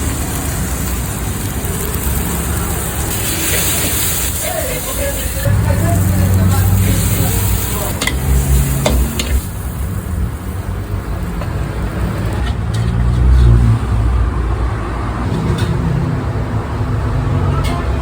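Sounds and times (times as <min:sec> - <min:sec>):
food sizzling in a wok: 0:00.0 - 0:12.4
metal spatula striking wok: 0:07.9 - 0:09.4.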